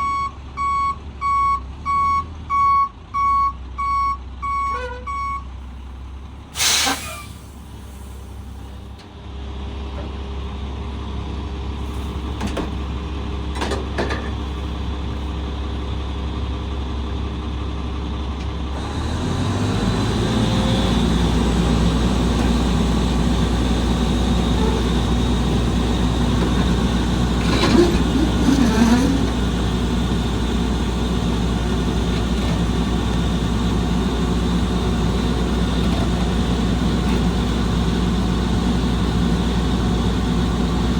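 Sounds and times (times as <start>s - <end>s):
garbage truck diesel engine: 0.0s - 40.9s.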